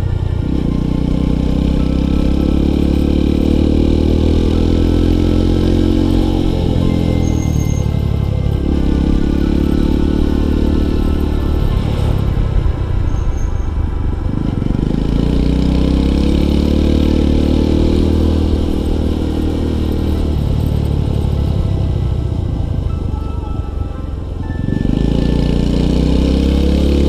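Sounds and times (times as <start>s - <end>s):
small motorcycle engine running: 0.0s - 27.0s.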